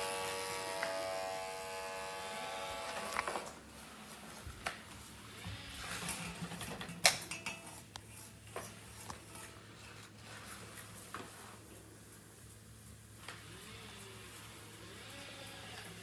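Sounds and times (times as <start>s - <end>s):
hard objects clattering: 5.9s - 9.6s.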